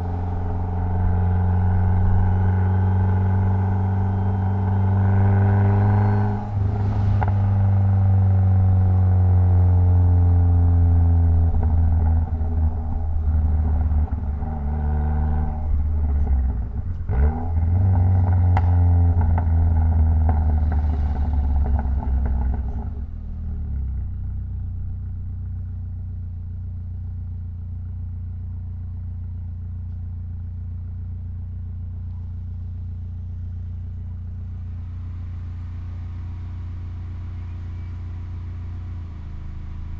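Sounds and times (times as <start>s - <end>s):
car engine idling: 0.0s - 14.7s, 18.2s - 39.9s
car engine running loudly: 0.0s - 23.2s.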